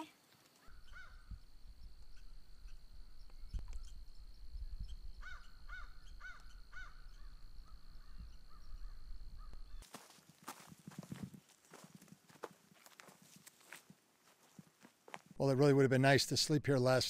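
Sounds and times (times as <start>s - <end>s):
bird calling: 0.0s - 9.9s
wind rumble on microphone: 0.8s - 9.8s.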